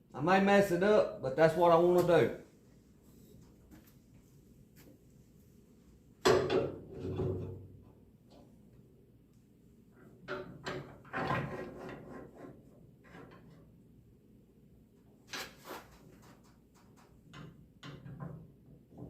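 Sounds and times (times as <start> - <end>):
tools clunking and rattling: 6.2 - 8.5, 10.0 - 13.8, 16.6 - 19.0.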